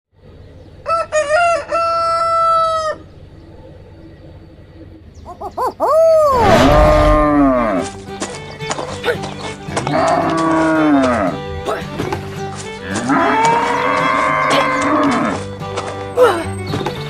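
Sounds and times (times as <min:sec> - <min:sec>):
rooster crowing: 0:00.8 - 0:03.0, 0:05.3 - 0:07.8.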